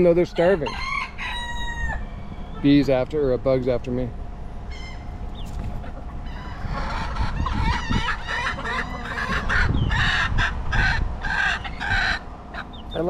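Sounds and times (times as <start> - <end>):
chicken warbling call: 0.2 - 2.9, 4.6 - 13.0
chicken squawks: 4.7 - 13.0.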